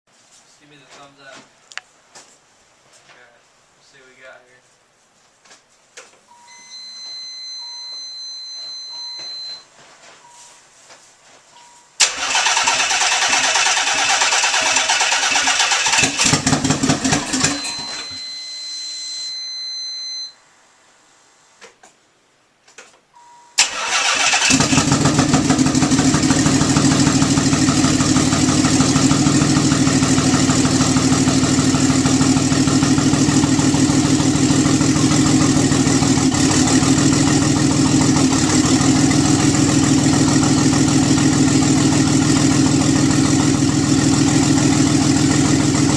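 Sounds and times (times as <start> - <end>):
starter cranking engine: 12.0 - 17.8, 23.6 - 29.3
car engine idling: 23.7 - 45.9.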